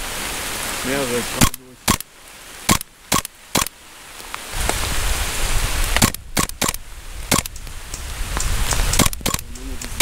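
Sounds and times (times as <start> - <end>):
heavy rain downpour: 0.0 - 10.0
sharp cracks: 1.4 - 3.8, 5.8 - 10.0
wind buffeting microphone: 4.5 - 10.0.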